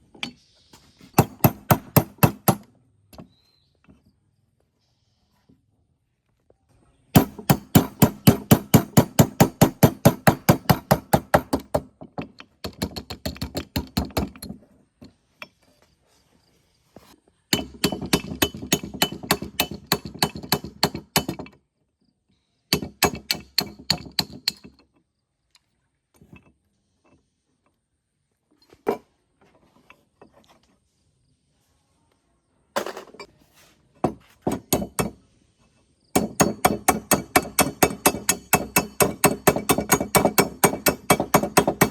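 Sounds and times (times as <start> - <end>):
rapid hammer strikes: 1.2 - 2.6, 7.2 - 11.9, 17.5 - 21.4, 22.7 - 24.6, 34.5 - 35.2, 36.2 - 41.9.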